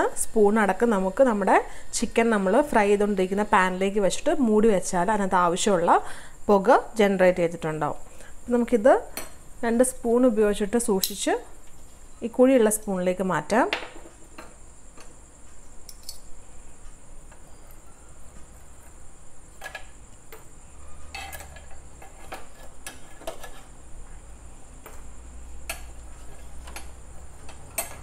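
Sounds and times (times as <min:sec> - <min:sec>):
steady high-pitched hiss: 0:00.0 - 0:28.0
metal spoons clinking and scraping: 0:15.9 - 0:16.3, 0:21.1 - 0:23.7.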